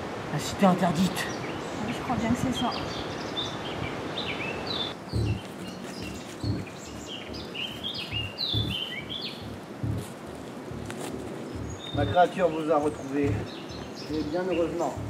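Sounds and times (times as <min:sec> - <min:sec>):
small birds chirping: 0:00.4 - 0:15.0
dull low thumps: 0:03.6 - 0:15.0.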